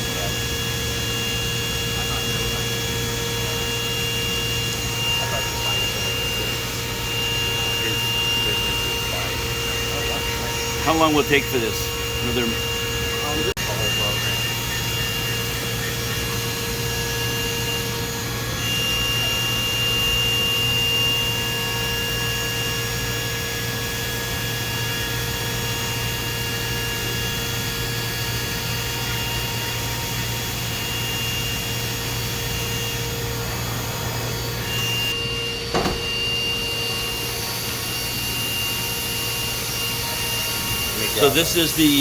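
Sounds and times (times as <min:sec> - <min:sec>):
high steady machine whine: 0:00.0 - 0:42.0
machining center hum and coolant spray: 0:00.0 - 0:42.0
short knock: 0:35.7 - 0:36.2.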